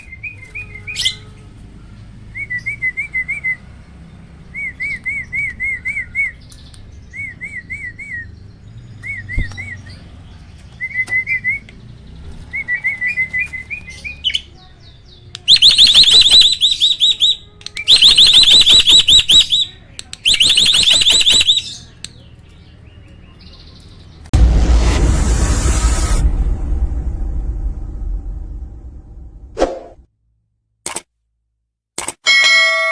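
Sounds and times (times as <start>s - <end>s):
starling singing rolling trills: 0.0s - 25.2s.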